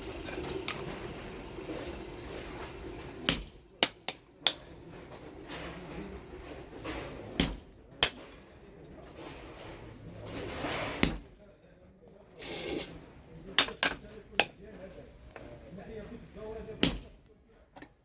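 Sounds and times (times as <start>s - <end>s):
hammer strikes on metal: 3.3s - 4.7s, 7.4s - 8.3s, 11.0s - 11.3s, 16.8s - 17.2s.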